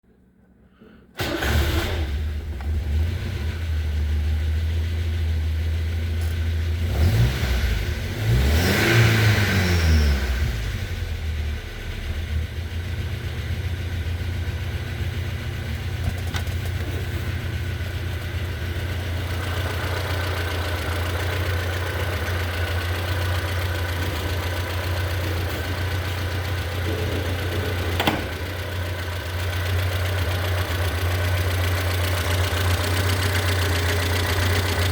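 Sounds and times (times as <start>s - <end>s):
car engine starting and idling: 0.5s - 34.9s
engine revving: 6.7s - 12.5s.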